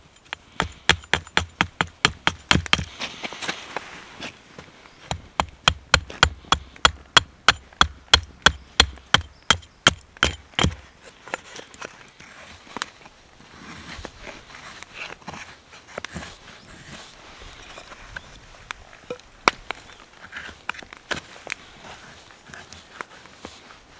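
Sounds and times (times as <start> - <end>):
sharp knocks: 0.2 - 3.0, 5.1 - 10.8
faint rustling: 2.9 - 5.1.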